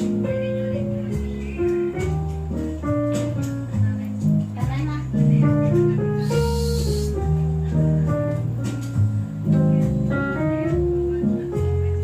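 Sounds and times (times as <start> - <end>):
bass line: 0.0 - 12.0
plucked guitar melody: 0.0 - 12.0
short hiss: 6.2 - 7.2.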